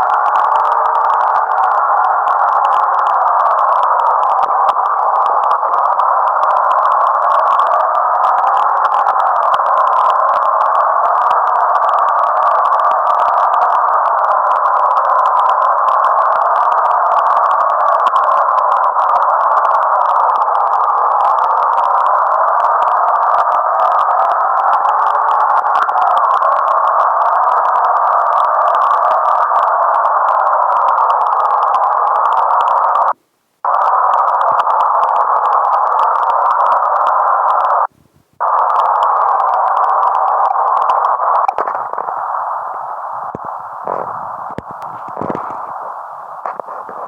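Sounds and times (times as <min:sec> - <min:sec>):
loud tone-like whine: 0:22.6 - 0:47.0.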